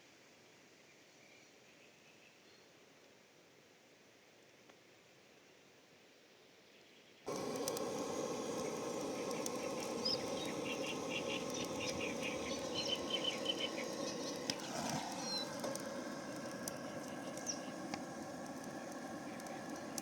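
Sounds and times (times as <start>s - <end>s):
outdoor background noise: 0.0s - 20.0s
birds chirping: 7.3s - 20.0s.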